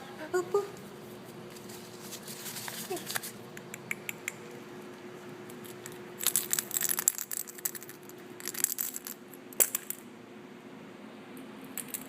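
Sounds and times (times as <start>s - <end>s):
kitten crinkling and clicking: 1.7s - 4.6s, 5.4s - 10.0s.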